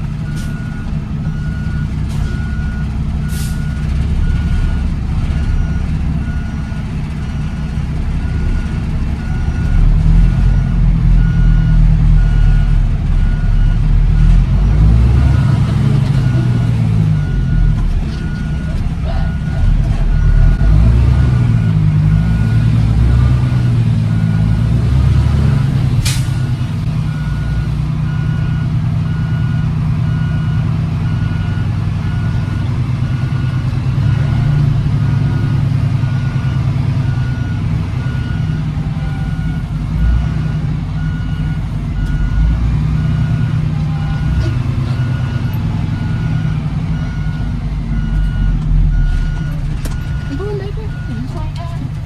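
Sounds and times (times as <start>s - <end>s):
diesel truck engine running: 0.0s - 52.0s
backup alarm beeping: 0.3s - 24.8s, 27.1s - 52.0s.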